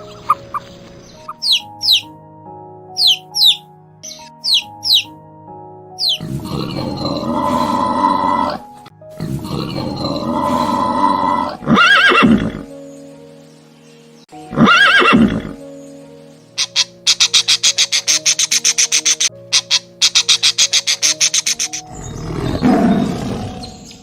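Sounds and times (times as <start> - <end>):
light background music: 0.0 - 24.0
horse neighing: 6.1 - 8.6, 9.4 - 12.7, 14.5 - 15.6.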